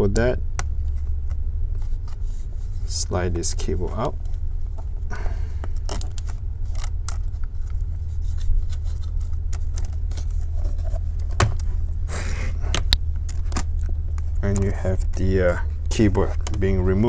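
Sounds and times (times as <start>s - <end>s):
ribbon cables scraping: 0.0s - 17.0s
steady low hum: 0.0s - 17.0s
light plastic clicks: 3.4s - 12.0s, 12.6s - 17.0s.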